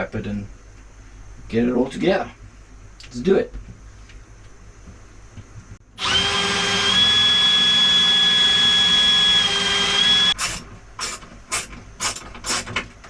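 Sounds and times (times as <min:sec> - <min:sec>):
power drill whining: 0:06.0 - 0:11.1.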